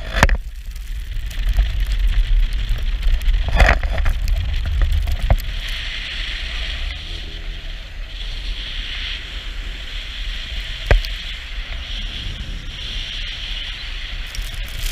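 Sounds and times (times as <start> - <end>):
car engine rumble: 0.0 - 14.9
tyres hissing through snow: 4.4 - 14.9.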